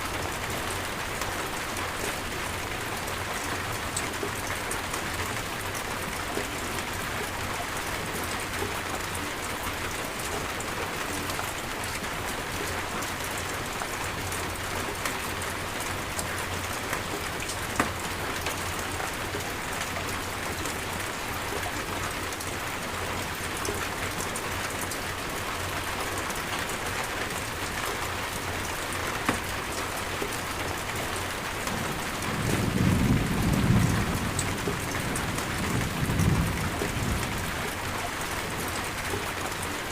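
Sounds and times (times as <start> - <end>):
steady rain falling: 0.0 - 39.9
low rumble of thunder: 31.8 - 37.8.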